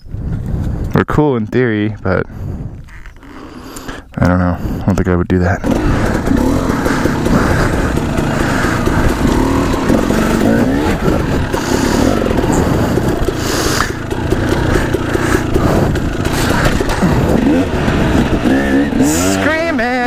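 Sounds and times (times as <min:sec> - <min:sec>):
dirt bike engine revving: 0:05.6 - 0:20.0.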